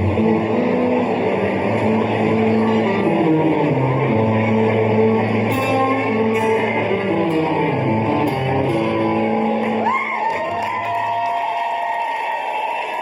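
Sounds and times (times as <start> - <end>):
country band playing: 0.0 - 10.0
electric guitar: 0.0 - 11.4.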